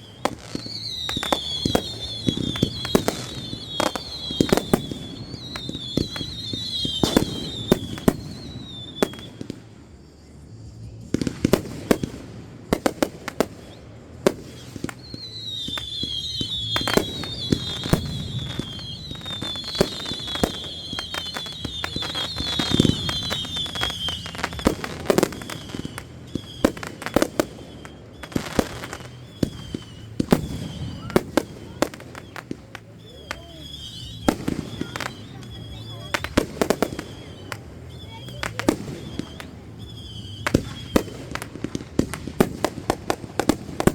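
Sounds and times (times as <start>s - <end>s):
high wavering whistle: 0.0s - 9.4s, 13.4s - 41.9s
fireworks bangs and crackles: 0.0s - 43.9s.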